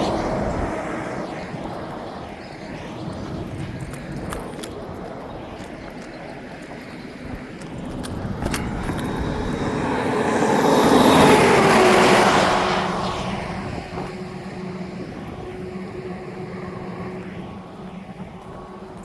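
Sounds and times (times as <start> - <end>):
vehicle passing by: 7.7 - 18.1.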